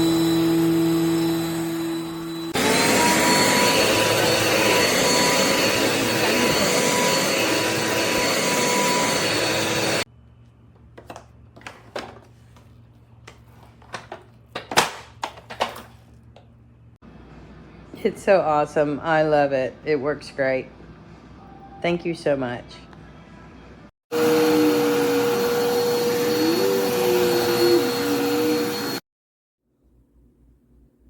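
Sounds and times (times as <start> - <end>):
vacuum cleaner motor whine: 0.0 - 10.1, 24.1 - 29.0.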